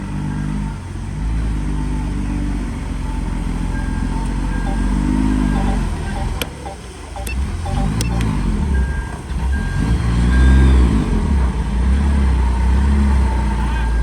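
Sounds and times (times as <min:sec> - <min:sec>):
sharp clicks: 0:05.6 - 0:08.4.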